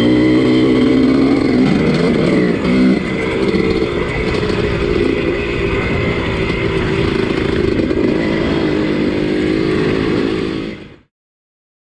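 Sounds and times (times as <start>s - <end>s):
motocross bike engine running: 0.0s - 11.1s.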